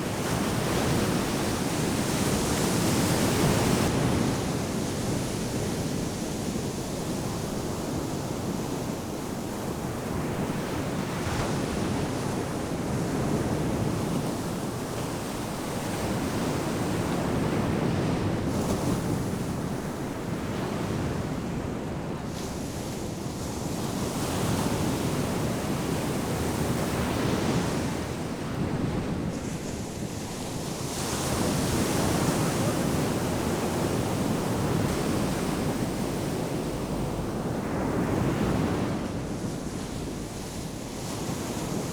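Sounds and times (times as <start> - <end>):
ocean surf breaking: 30.8 - 41.9.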